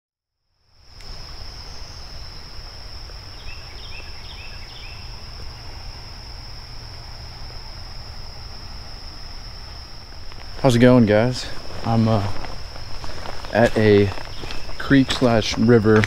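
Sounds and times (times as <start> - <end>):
insects trilling: 0.5 - 16.0.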